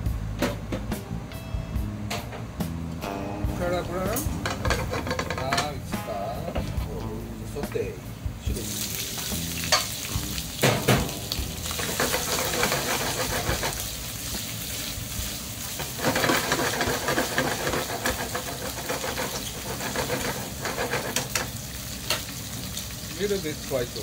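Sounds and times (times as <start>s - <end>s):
sharp knocks in pan: 4.1s - 5.8s, 9.6s - 9.9s, 10.6s - 13.7s
shrimp sizzling in oil: 8.5s - 24.0s.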